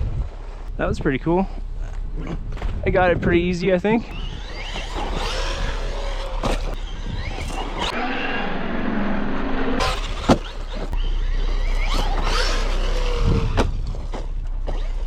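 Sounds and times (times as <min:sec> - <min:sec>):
electric motor whining: 0:03.7 - 0:15.0.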